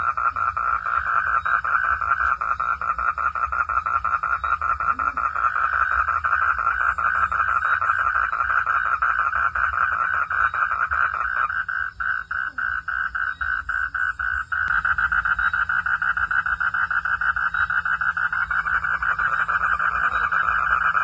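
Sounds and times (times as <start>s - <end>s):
frogs calling: 0.0s - 21.0s
low steady rumble: 11.8s - 21.0s.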